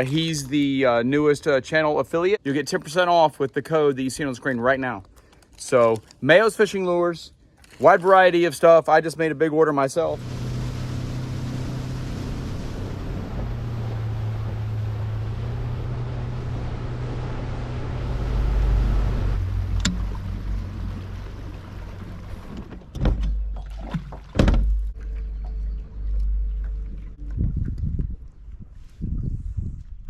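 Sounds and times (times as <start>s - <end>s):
wind and water hiss: 10.2s - 16.8s, 18.2s - 22.7s
boat motor running: 10.2s - 28.4s
loud knocks and thumps: 21.8s - 25.0s.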